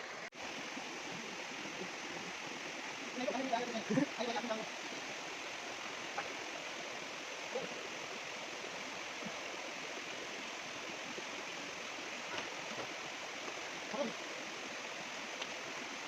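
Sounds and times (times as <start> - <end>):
forest stream rushing: 0.0 - 16.0.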